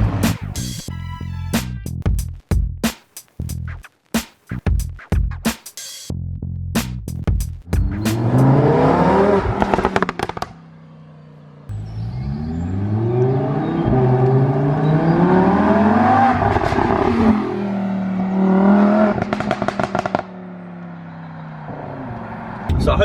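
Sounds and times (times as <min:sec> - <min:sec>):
exhaust crackles and pops: 0:01.7 - 0:05.6, 0:06.7 - 0:10.7, 0:19.0 - 0:20.9
sports car engine accelerating: 0:07.9 - 0:22.8.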